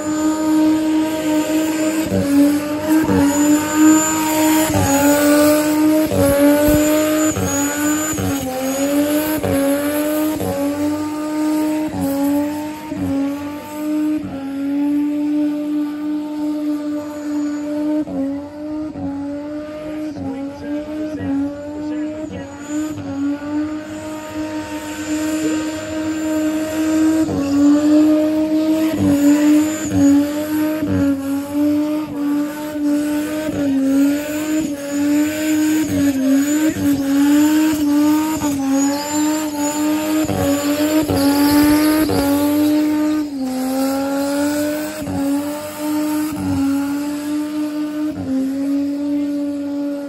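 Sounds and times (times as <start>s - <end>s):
tyre squeal: 0.0s - 11.3s, 33.4s - 47.1s
car engine revving high: 0.0s - 50.0s.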